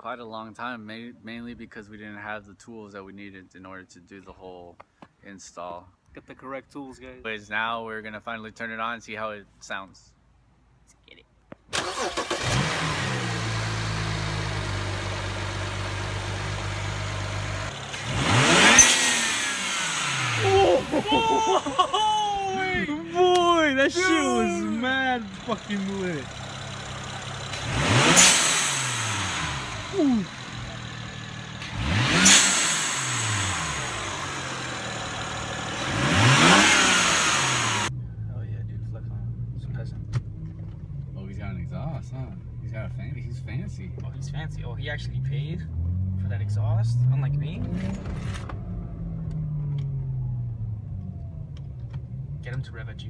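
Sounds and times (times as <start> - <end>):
car engine starting and idling: 11.7 - 53.0
engine revving: 11.8 - 38.2, 44.2 - 52.7.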